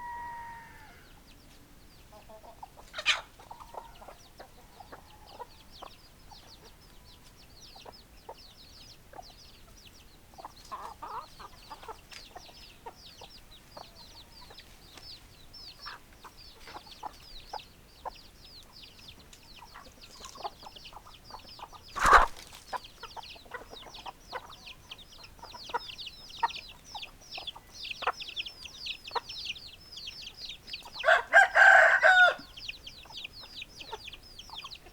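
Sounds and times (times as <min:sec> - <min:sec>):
rooster crowing: 0:00.0 - 0:01.2, 0:31.0 - 0:32.5
chickens clucking: 0:00.0 - 0:34.9.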